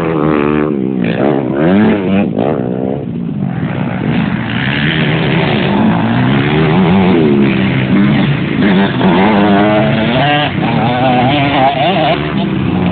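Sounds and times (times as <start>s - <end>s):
motocross bike engines revving: 0.0s - 12.9s.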